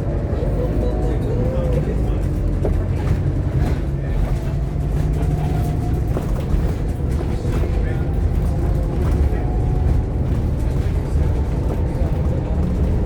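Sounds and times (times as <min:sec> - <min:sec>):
diesel bus engine rumble: 0:00.0 - 0:13.0.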